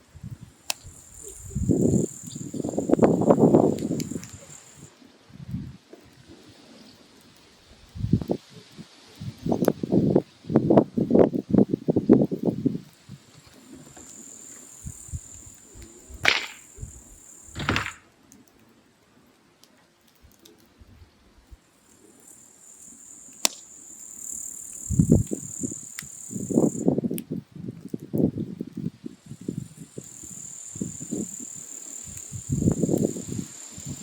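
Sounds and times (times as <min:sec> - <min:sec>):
firewood crackling and popping: 0:00.0 - 0:34.0
insect chirring: 0:00.3 - 0:04.9, 0:13.5 - 0:18.1, 0:21.7 - 0:27.0, 0:29.0 - 0:34.0.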